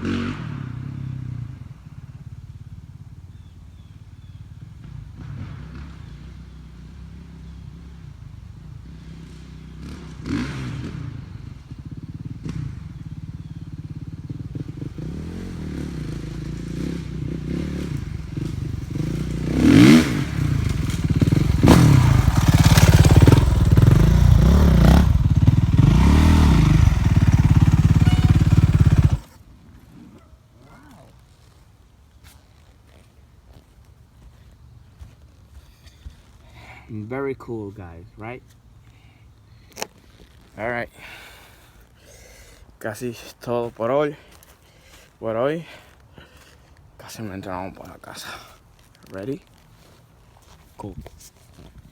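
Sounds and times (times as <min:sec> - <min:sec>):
dirt bike engine revving: 0:00.0 - 0:02.4, 0:08.8 - 0:29.4.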